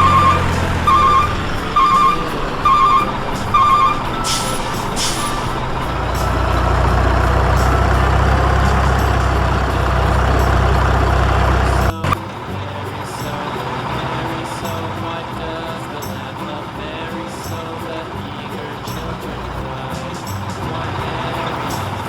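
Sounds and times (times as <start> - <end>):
air brake hisses: 0.0 - 7.0
truck reversing beeps: 0.0 - 12.7
truck engine rumble: 0.0 - 22.0.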